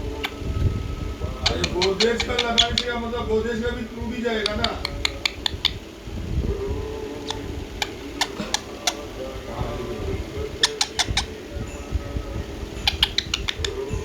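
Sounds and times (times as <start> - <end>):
baby parrot squawking: 1.3 - 5.9, 7.2 - 9.2, 9.9 - 11.5, 12.7 - 13.9.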